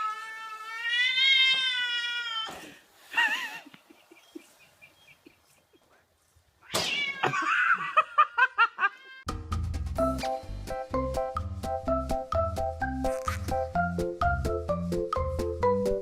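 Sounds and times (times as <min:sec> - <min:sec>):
cat meowing: 0:00.0 - 0:02.6, 0:06.6 - 0:07.4
background music with steady beat: 0:09.3 - 0:16.0.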